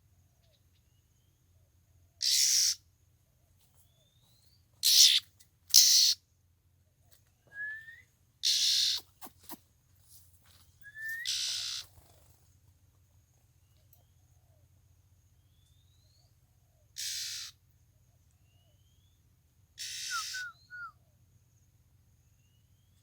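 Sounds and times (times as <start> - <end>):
harsh hissing bird calls: 2.2 - 2.8, 4.8 - 6.2, 8.4 - 9.6, 11.1 - 12.2, 16.9 - 17.6, 19.8 - 20.7
high insect-like tone: 2.2 - 2.8, 4.8 - 6.2, 10.5 - 12.6, 17.0 - 17.9, 19.8 - 20.7
birds whistling rising notes: 19.8 - 20.9.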